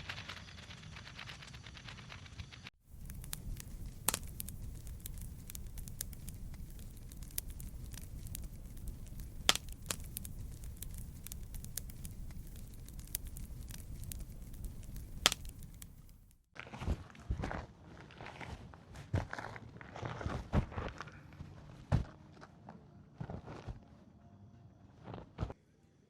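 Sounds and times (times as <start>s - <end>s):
campfire crackling: 0.4s - 16.5s
low rumble of flame: 0.4s - 16.5s
loud fire pops: 2.9s - 16.4s.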